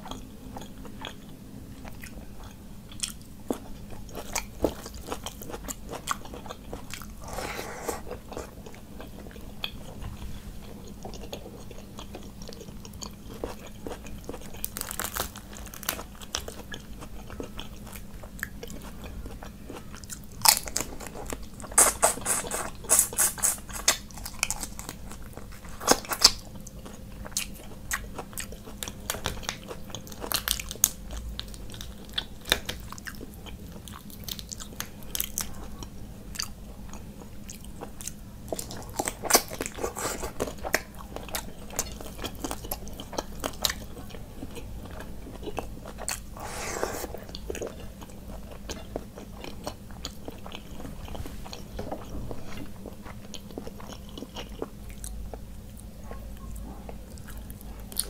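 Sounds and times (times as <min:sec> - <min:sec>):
crunchy chewing and biting: 0:00.0 - 0:56.3.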